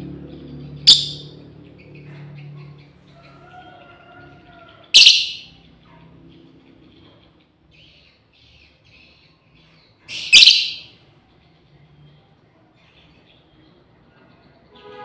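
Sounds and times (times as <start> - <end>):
faint bird chattering: 0.6 - 12.1
lovebird shrill calls: 0.9 - 1.3, 4.9 - 5.5, 10.1 - 10.9.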